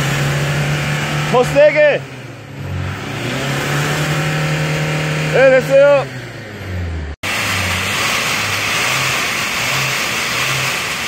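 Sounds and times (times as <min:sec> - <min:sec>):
diesel engine running: 0:00.0 - 0:11.0
loud hiss: 0:07.2 - 0:11.0.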